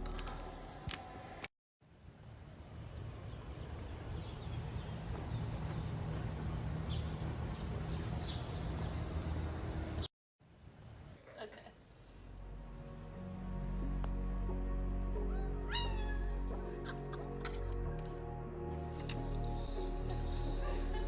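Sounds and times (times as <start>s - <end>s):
low hum: 0.0s - 1.2s, 12.2s - 21.0s
outdoor background noise: 0.0s - 13.5s
birds chirping: 2.6s - 10.1s.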